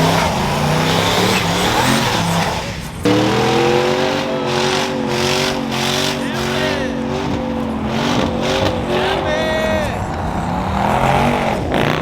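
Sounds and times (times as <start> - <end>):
truck engines running: 0.0 - 12.0.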